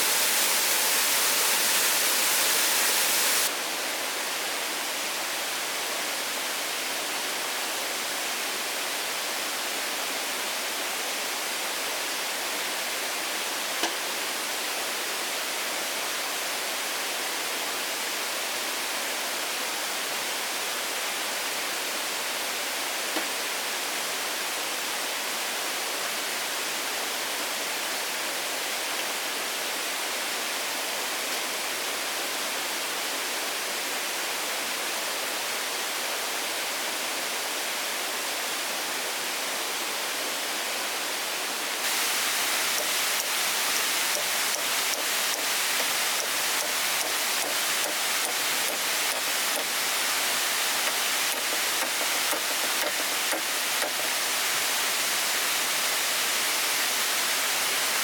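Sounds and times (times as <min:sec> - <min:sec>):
steady hiss: 0:00.0 - 0:16.3, 0:38.3 - 0:58.0.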